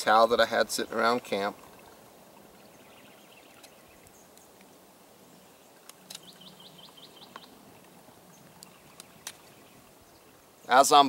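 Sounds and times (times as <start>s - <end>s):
faint outdoor background noise: 0.0s - 11.0s
small bird chirping: 5.2s - 7.6s.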